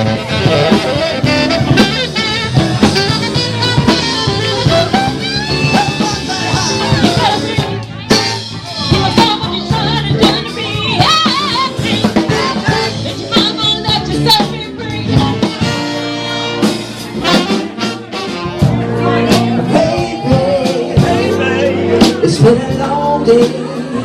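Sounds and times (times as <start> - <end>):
horns playing: 0.0 - 10.0, 10.9 - 19.9
person singing: 0.0 - 16.4, 18.4 - 24.0
drum kit: 0.0 - 24.0.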